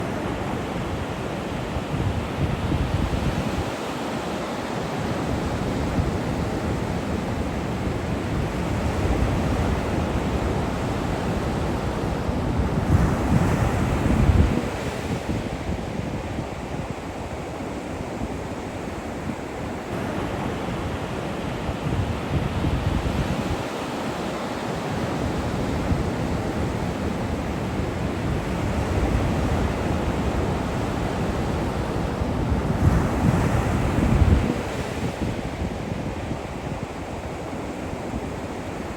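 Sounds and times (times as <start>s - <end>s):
ocean surf breaking on beach: 0.0s - 38.9s
wind buffeting microphone: 0.0s - 38.9s.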